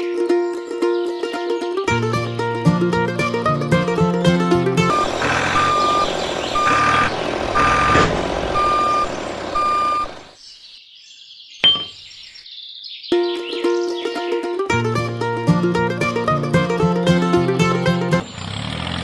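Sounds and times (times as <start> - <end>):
reversing alarm beeping: 8.6 - 10.1.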